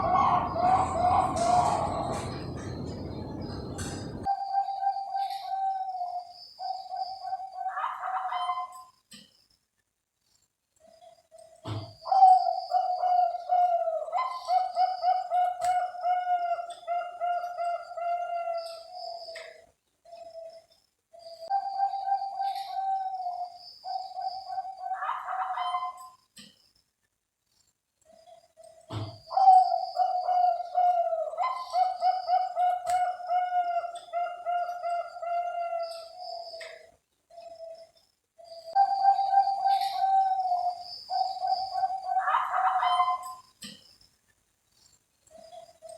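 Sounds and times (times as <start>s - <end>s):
dove cooing: 0.0s - 8.6s, 21.2s - 26.0s, 29.0s - 37.8s, 38.4s - 43.4s.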